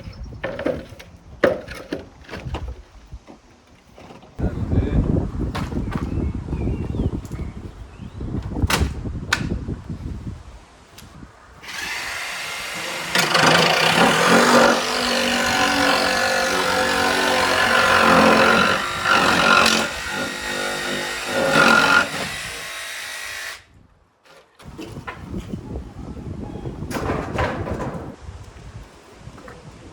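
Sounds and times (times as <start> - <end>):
wind buffeting microphone: 0.0 - 1.4, 4.4 - 12.9, 24.6 - 29.9
power tool running: 11.6 - 23.7.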